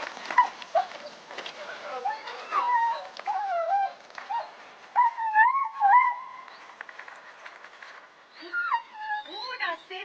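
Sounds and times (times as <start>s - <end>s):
dogs whining: 2.0s - 6.6s, 8.4s - 10.0s.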